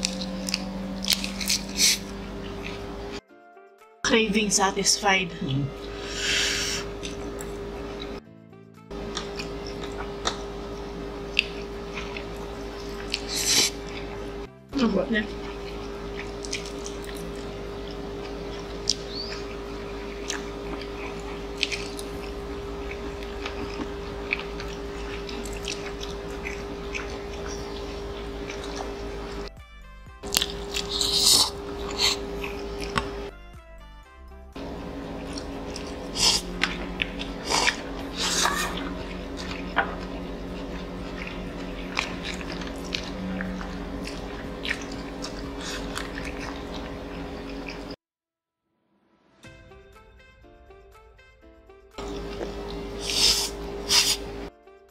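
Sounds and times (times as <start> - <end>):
chopsticks clicking: 0.0 - 2.8
low hum: 0.0 - 3.2, 4.2 - 8.2, 8.9 - 29.5, 30.2 - 33.3, 34.6 - 48.0, 52.0 - 54.5
people chewing: 0.0 - 3.2, 5.7 - 8.2, 8.9 - 14.5, 15.2 - 29.5, 30.2 - 33.3, 34.6 - 48.0, 52.0 - 54.5.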